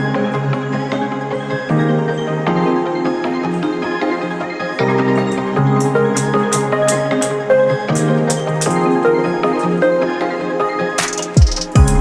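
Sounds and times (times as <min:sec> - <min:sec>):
instrumental music with percussion beat: 0:05.8 - 0:08.9, 0:11.0 - 0:12.0.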